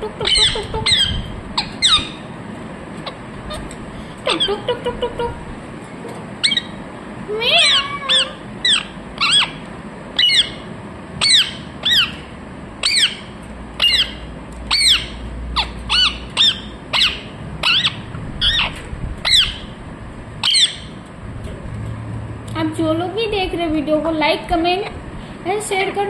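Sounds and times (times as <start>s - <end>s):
parrot squawking: 0.0s - 2.3s, 3.0s - 5.4s, 6.4s - 6.8s, 7.4s - 9.6s, 10.2s - 19.8s, 20.4s - 21.0s.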